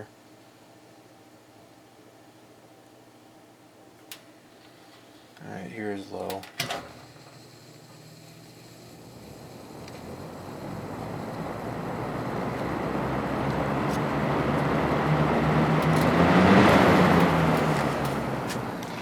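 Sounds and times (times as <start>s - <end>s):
fan motor humming: 3.8s - 19.0s
rushing air from fan: 7.0s - 19.0s.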